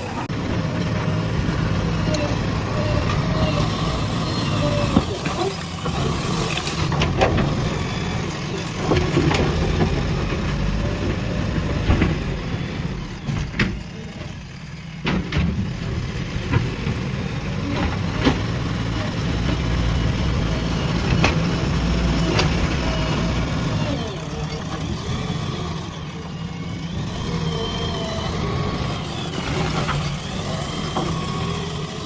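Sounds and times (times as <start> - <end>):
diesel engine running: 0.0 - 32.0
sharp knocks and clanks: 4.7 - 14.4, 15.0 - 17.2.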